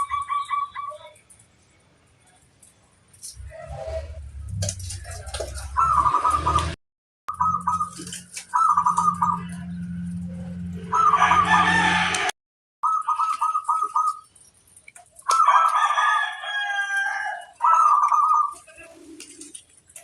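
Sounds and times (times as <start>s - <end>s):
dove cooing: 0.0s - 1.2s, 4.8s - 9.6s, 10.9s - 11.7s, 12.8s - 14.3s, 15.2s - 20.0s
hum: 3.3s - 8.2s
rooster crowing: 10.8s - 12.3s, 15.3s - 18.1s.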